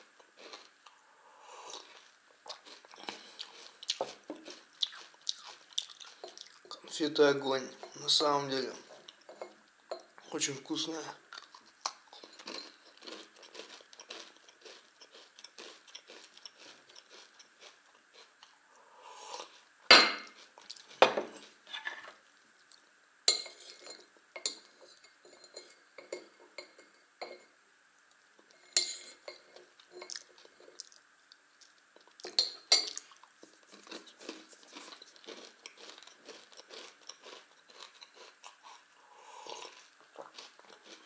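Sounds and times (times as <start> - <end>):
chewing and crunching candy: 0.2 - 1.0, 1.7 - 6.9, 11.3 - 18.6, 30.0 - 41.0
mug and saucer clinking: 19.9 - 20.3.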